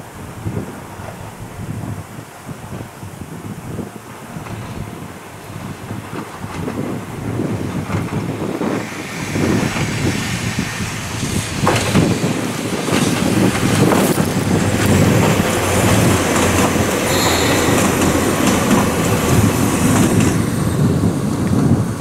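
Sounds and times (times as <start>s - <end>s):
train wheels clicking over rail joints: 4.4s - 21.6s.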